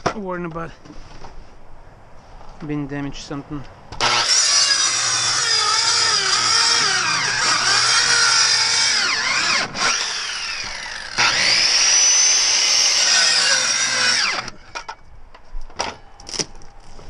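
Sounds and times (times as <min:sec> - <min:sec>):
circular saw motor whine: 0:04.0 - 0:15.0.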